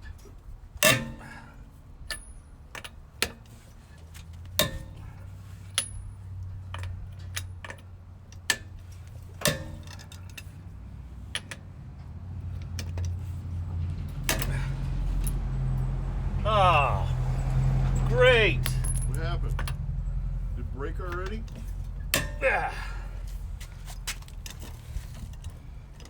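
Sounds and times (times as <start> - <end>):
hand tools clanking on metal: 0.8 - 2.9, 4.6 - 10.7, 12.5 - 15.6, 17.8 - 25.7
steady low hum: 13.1 - 25.8.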